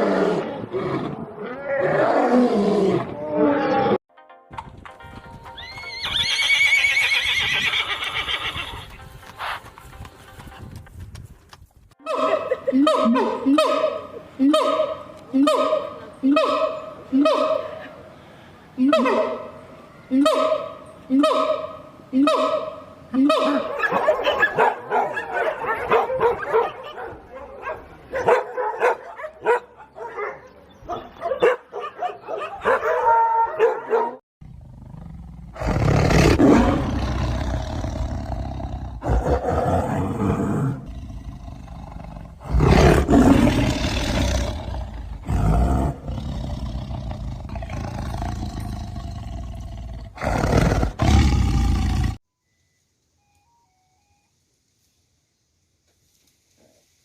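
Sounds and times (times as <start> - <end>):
big cat roaring and growling: 0.0 - 4.0, 34.4 - 52.2.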